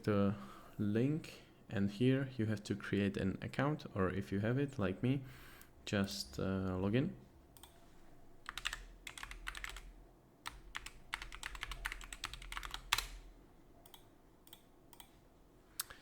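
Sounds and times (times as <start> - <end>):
typing on computer keyboard: 8.5 - 9.9, 10.5 - 13.3.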